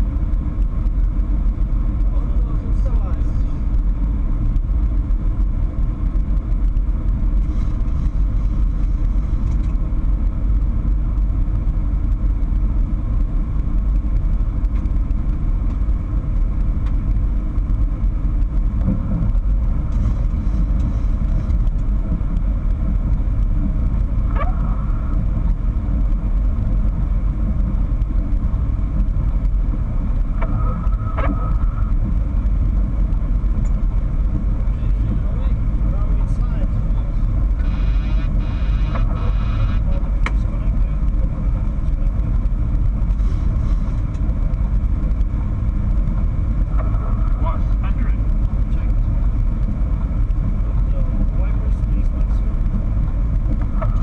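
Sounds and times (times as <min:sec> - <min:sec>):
aircraft cockpit rumble: 0:00.0 - 0:54.0.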